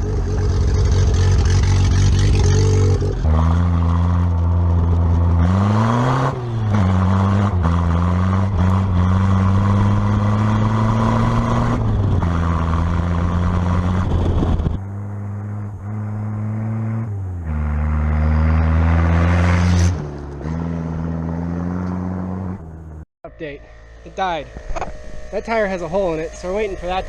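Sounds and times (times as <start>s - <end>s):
car engine running while driving: 0.0s - 23.0s.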